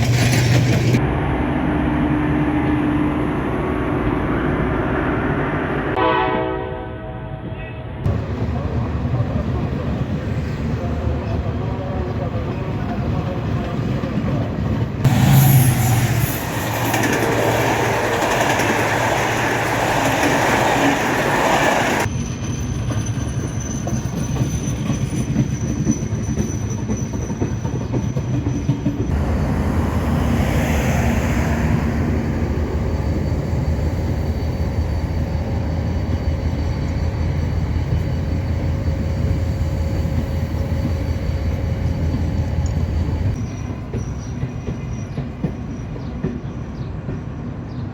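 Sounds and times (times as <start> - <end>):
train wheel and track noise: 0.0 - 6.6, 7.5 - 47.9
loud rushing noise: 15.1 - 18.0, 29.1 - 33.4.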